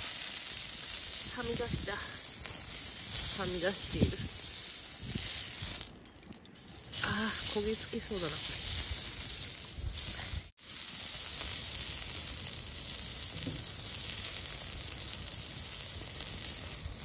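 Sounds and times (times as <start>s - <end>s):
food sizzling over campfire: 0.0s - 17.0s.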